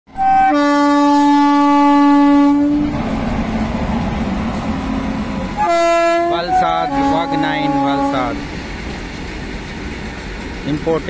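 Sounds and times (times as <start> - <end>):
locomotive horn blast: 0.1 - 3.0, 5.2 - 8.5
train wagons rumbling past: 0.4 - 11.0.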